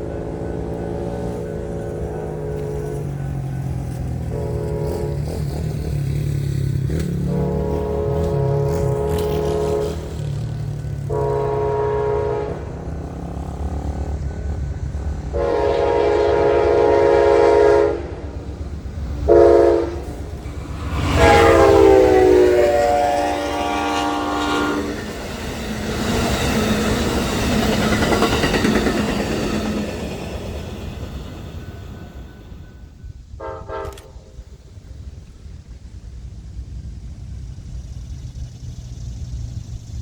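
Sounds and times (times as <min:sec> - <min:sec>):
locomotive air horn blasts: 0:00.0 - 0:18.4, 0:19.2 - 0:26.8, 0:31.9 - 0:34.4
train rumbling and rattling: 0:00.0 - 0:40.0.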